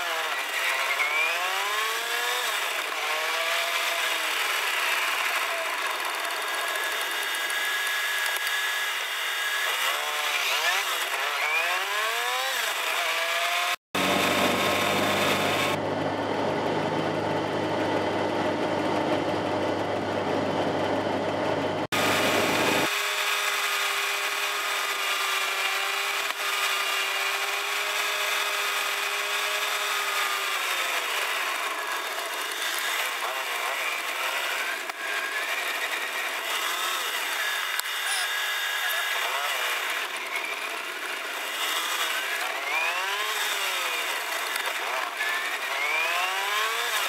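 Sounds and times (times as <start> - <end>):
small car engine from inside: 14.0 - 22.9.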